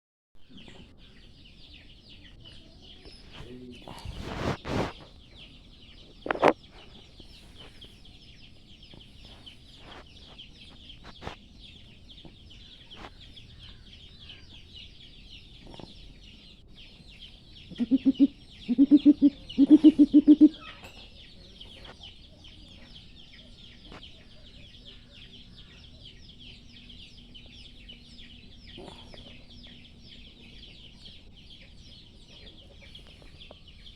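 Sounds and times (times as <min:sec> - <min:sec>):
bird deep pulsed calls: 0:17.7 - 0:20.8.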